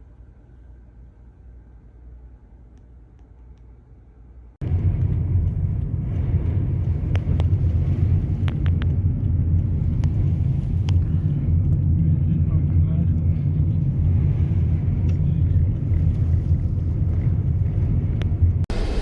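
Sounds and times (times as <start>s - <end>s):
car rumbling on road: 4.6s - 19.0s.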